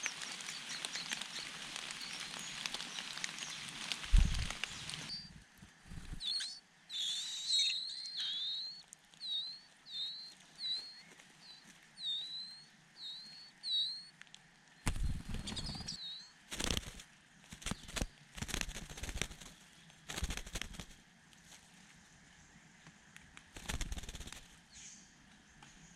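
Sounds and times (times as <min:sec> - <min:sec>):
wings flapping: 0:00.0 - 0:06.4, 0:14.8 - 0:21.0, 0:23.5 - 0:24.6
bird chirping: 0:04.1 - 0:14.1, 0:14.8 - 0:17.0.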